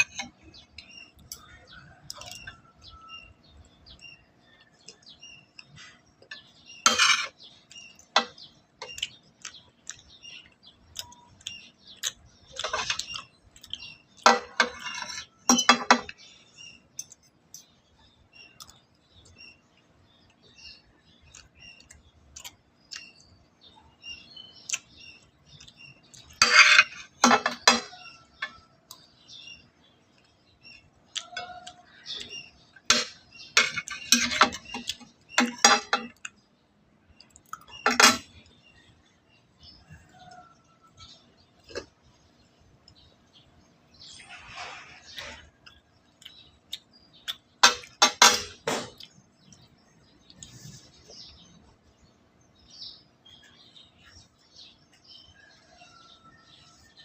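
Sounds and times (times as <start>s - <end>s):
cutlery clinking on dishes: 6.3s - 7.5s, 14.2s - 16.2s, 26.3s - 28.6s, 32.9s - 36.2s, 37.7s - 38.4s, 47.6s - 49.0s.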